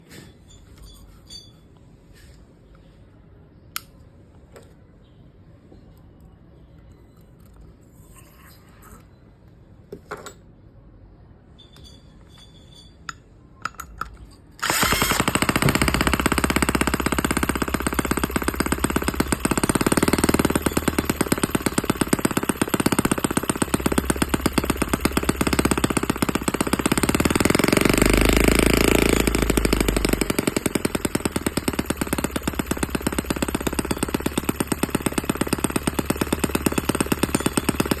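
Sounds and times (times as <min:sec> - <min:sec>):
small engine running: 0:14.6 - 0:38.0.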